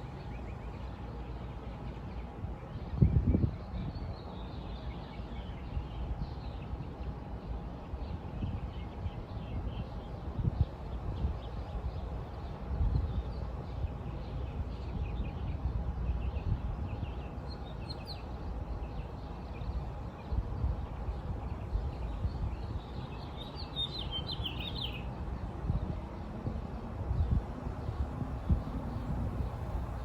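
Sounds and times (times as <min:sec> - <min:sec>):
birds chirping: 0:03.8 - 0:25.1.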